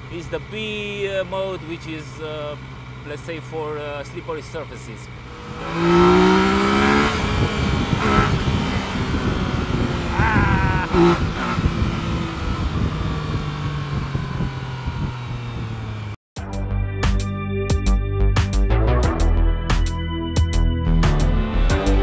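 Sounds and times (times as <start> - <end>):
motorcycle engine revving: 5.1 - 16.2.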